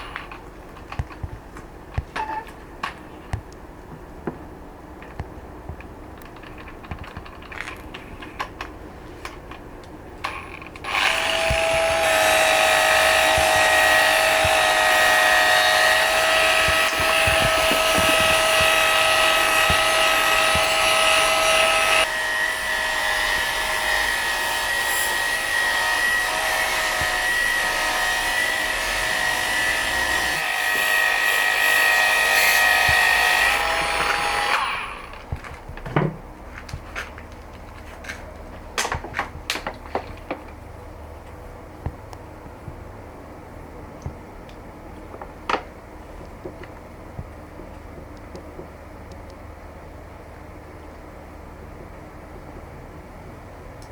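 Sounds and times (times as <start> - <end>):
power tool motor whining: 10.8 - 35.2.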